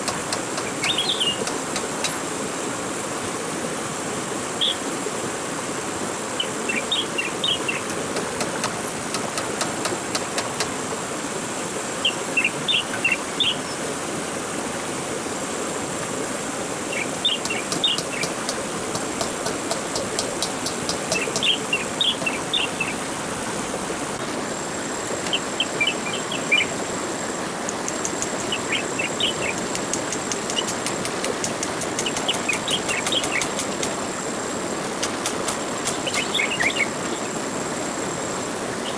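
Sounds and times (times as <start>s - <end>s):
steady hiss: 0.0s - 38.9s
bird chirping: 0.6s - 1.6s, 27.9s - 33.9s, 35.8s - 37.0s
insect buzz: 17.2s - 38.9s
rapid ticking: 29.5s - 34.0s.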